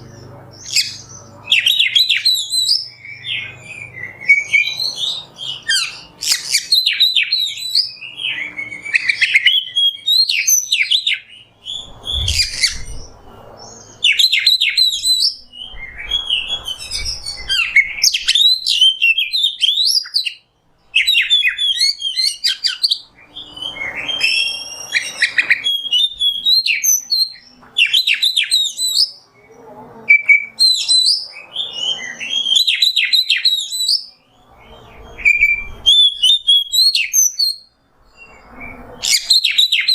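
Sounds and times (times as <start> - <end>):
bird singing whistled phrases: 0.7 - 29.2, 30.1 - 39.9.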